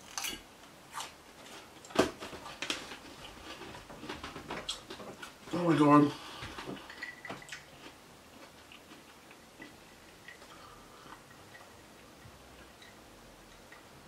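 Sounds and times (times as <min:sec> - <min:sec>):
faint chewing: 0:06.3 - 0:13.8.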